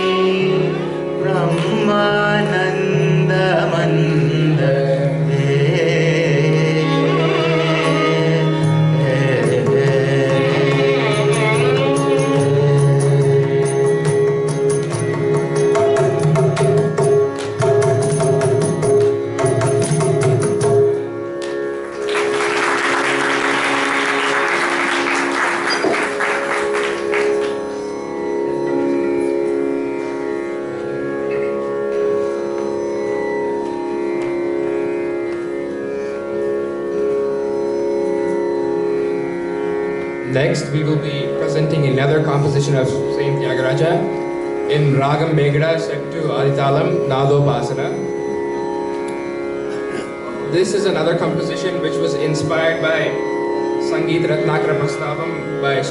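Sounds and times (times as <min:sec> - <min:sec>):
vocal music with violin: 0:00.0 - 0:22.0, 0:23.1 - 0:55.9
drum strokes: 0:14.6 - 0:21.0
applause: 0:21.9 - 0:27.6.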